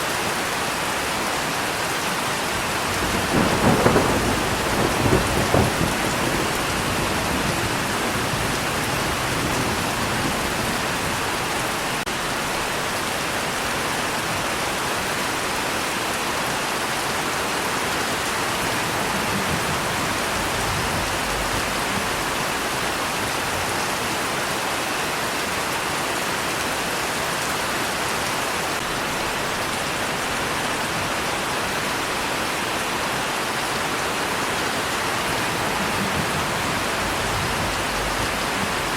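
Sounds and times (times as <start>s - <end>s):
steady rain falling: 0.0s - 38.9s
low thunder rumble: 2.6s - 12.0s, 18.2s - 23.7s, 34.8s - 38.9s.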